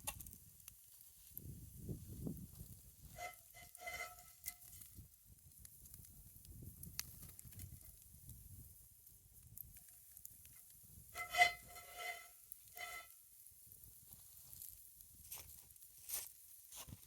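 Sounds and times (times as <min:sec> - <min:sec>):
pancakes sizzling in a skillet: 0:00.0 - 0:08.6
campfire crackling: 0:00.0 - 0:17.0.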